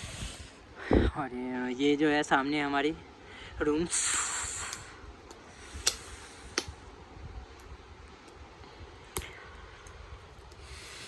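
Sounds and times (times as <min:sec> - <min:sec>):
faint steady hiss: 0:00.0 - 0:11.0
bonfire crackling: 0:04.0 - 0:11.0
sharp fire pops: 0:09.1 - 0:10.6.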